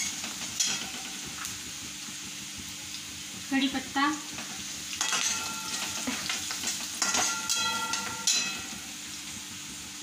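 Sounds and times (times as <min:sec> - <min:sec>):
onion sizzling in hot oil: 0:00.0 - 0:10.0
steel ladle scraping and clinking: 0:05.0 - 0:08.9.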